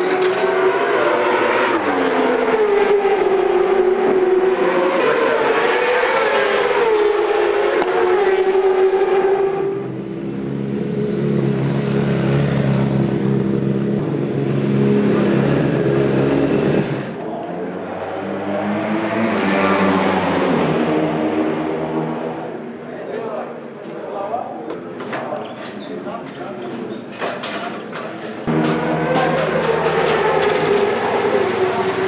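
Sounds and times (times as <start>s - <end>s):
superbike engines revving high: 0.0s - 17.2s, 28.5s - 32.0s.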